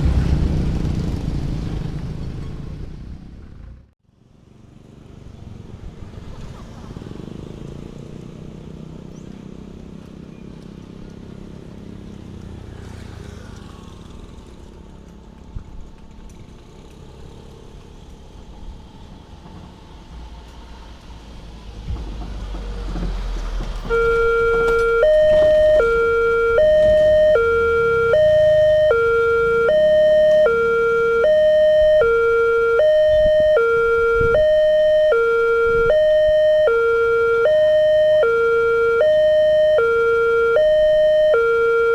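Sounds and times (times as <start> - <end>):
low rumble of passing vehicles: 0.0 - 41.9
level crossing warning siren: 23.7 - 41.9.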